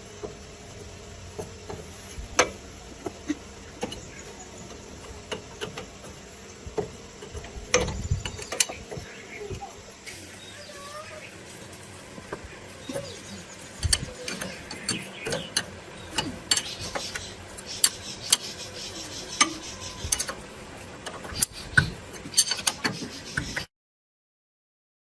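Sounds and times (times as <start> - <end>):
hand tools clicking and clanking: 1.3 - 10.3, 11.5 - 23.7
ratchet ticking: 13.8 - 20.4.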